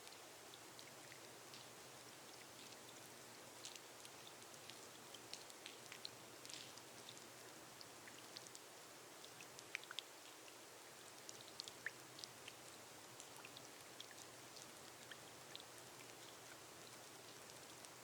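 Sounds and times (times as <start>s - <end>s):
rain on a glass roof: 0.0s - 18.0s.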